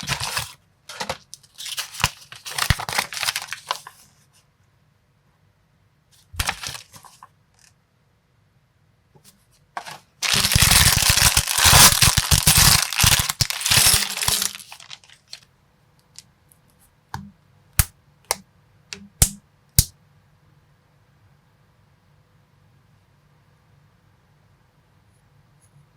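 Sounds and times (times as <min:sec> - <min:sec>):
plastic bricks clattering: 0:10.2 - 0:15.4.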